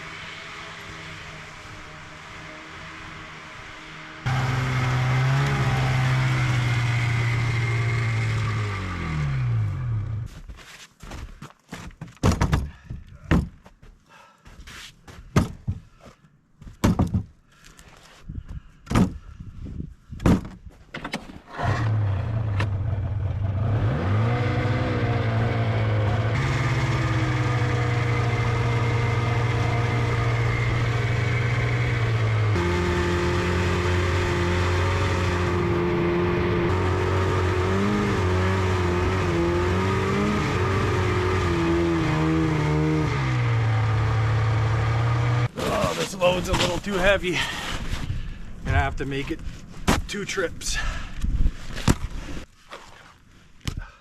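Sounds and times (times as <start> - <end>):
small petrol engine running: 0.0 - 10.3, 21.5 - 45.7
sharp knocks and thunks: 11.7 - 13.8, 15.2 - 15.9, 16.6 - 17.4, 18.5 - 19.3, 20.2 - 21.4, 49.8 - 50.2.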